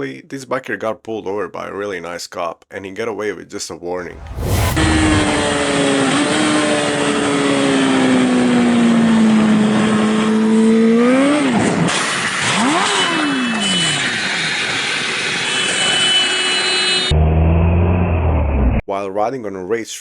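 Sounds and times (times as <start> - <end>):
vehicle engine revving and passing: 4.2 - 6.1.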